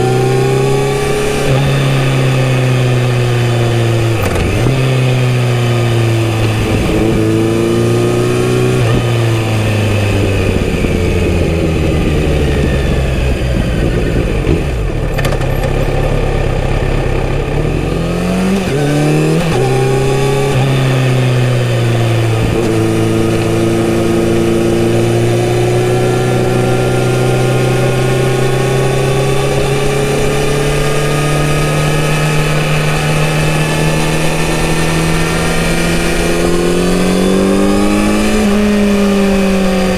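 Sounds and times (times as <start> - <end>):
motorcycle engine revving and shifting: 0.0 - 39.9.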